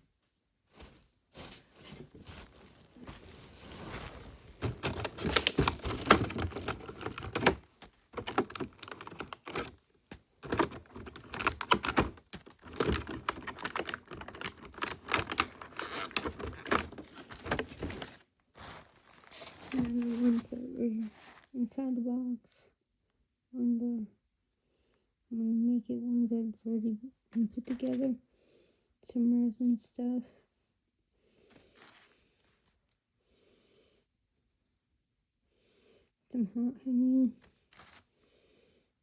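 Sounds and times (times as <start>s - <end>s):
plastic packaging crinkling: 2.2s - 9.8s, 10.4s - 20.6s, 37.7s - 38.0s.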